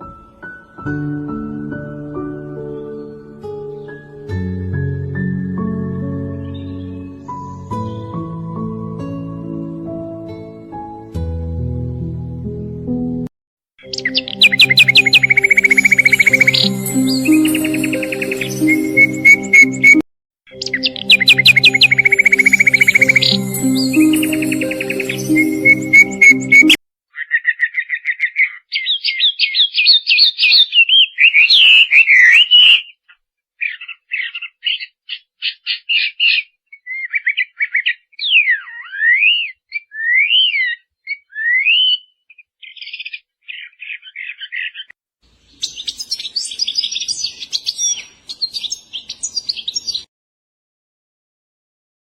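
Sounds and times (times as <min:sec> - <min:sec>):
songbird singing: 0:06.3 - 0:08.3, 0:13.8 - 0:50.1.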